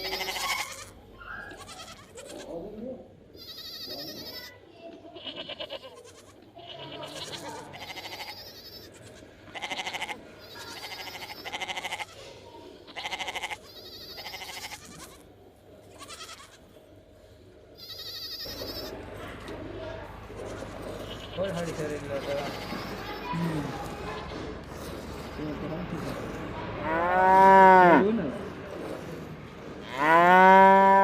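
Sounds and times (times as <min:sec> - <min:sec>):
sheep or goats bleating: 0:00.0 - 0:02.6, 0:03.3 - 0:15.3, 0:15.9 - 0:16.7, 0:17.8 - 0:19.0, 0:20.3 - 0:28.0.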